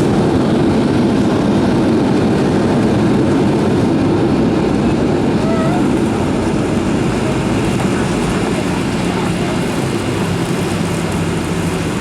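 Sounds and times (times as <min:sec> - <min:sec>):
jet engines rumbling: 0:00.0 - 0:12.0
rushing air: 0:00.0 - 0:12.0.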